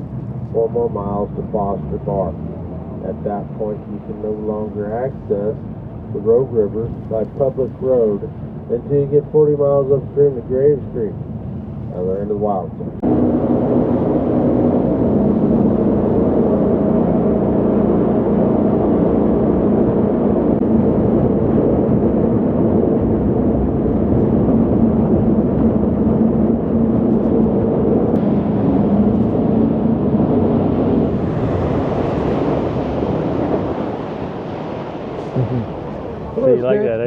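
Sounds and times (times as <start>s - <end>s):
boat engine running: 0.0s - 37.0s
water and wind rushing: 13.0s - 37.0s.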